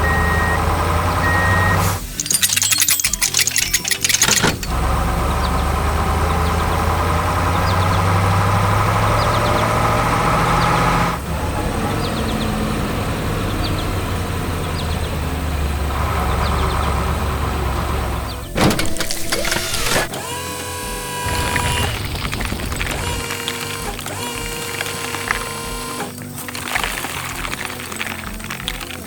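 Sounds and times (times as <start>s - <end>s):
heavy vehicle engine running: 4.5s - 18.8s.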